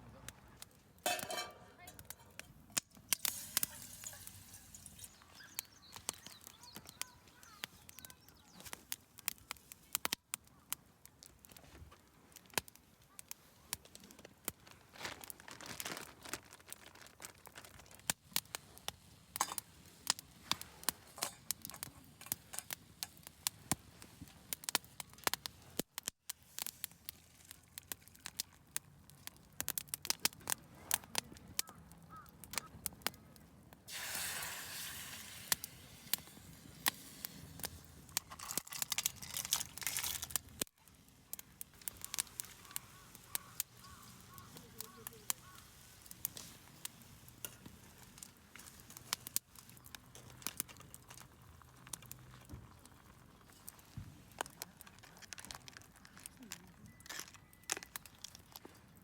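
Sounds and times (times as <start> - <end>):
campfire crackling: 0.0 - 59.0
faint hiss: 3.1 - 8.6, 33.9 - 38.3.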